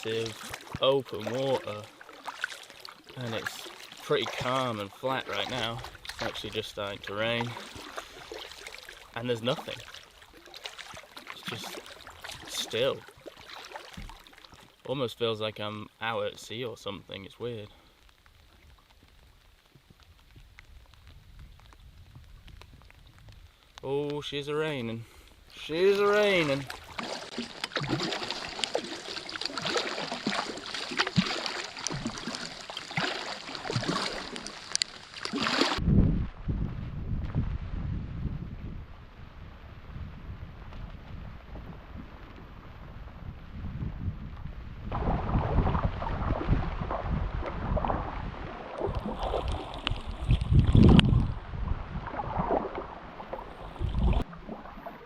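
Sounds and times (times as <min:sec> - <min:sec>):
rain falling on water: 0:00.0 - 0:36.4, 0:45.2 - 0:55.0
wind buffeting microphone: 0:35.8 - 0:54.4.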